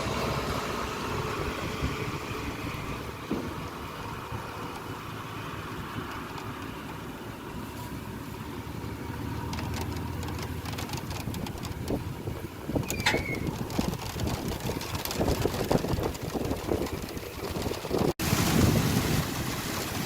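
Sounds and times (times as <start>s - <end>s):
engine idling: 0.0s - 20.0s
sharp clicks: 9.4s - 12.0s.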